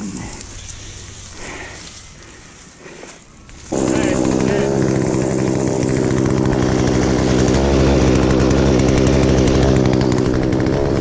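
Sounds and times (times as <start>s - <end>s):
chainsaw running at high revs: 3.6s - 11.0s.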